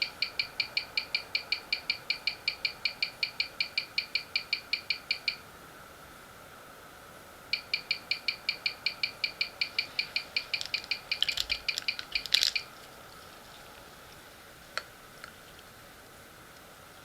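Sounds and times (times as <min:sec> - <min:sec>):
wristwatch ticking: 0:07.6 - 0:12.7.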